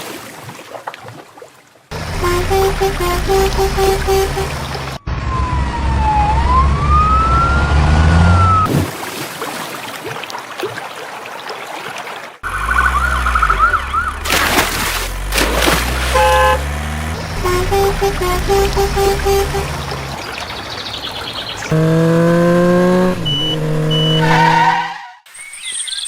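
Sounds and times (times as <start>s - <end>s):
vehicle engine running: 1.9s - 8.7s, 12.4s - 24.2s
siren rising and falling: 2.1s - 8.7s, 12.4s - 14.3s, 21.7s - 25.3s
fast warbling siren yelp: 2.2s - 8.7s, 12.4s - 14.3s, 23.2s - 25.2s.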